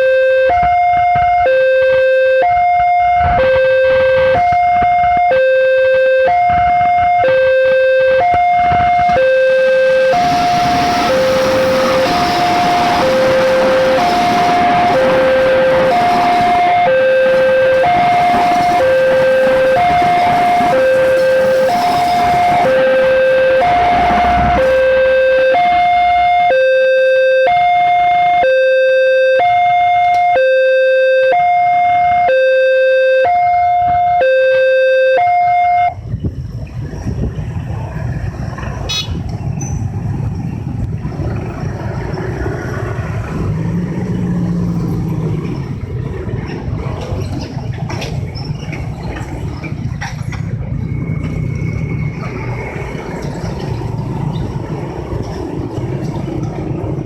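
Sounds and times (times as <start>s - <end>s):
passing road vehicles rumble: 0.0s - 30.4s, 35.4s - 57.0s
level crossing alarm two-tone: 0.0s - 36.0s.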